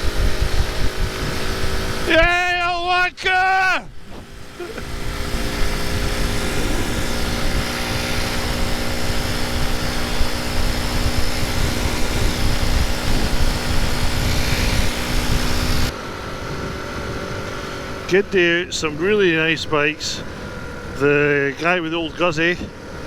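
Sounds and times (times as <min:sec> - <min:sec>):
motorcycle engine running: 0:00.0 - 0:02.8, 0:03.9 - 0:23.0
wind rushing over microphone: 0:00.0 - 0:23.0.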